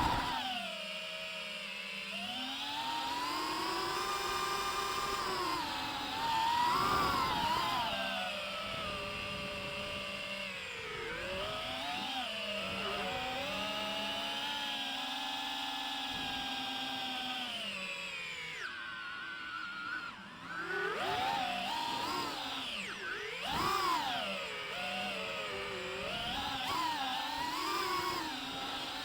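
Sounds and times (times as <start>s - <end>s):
drone propellers whining: 0.0s - 14.4s.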